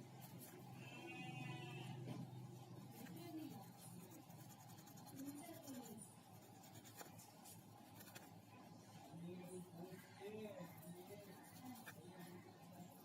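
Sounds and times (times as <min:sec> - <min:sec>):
small brush scrubbing circuit board: 0:00.0 - 0:01.9, 0:02.5 - 0:13.0.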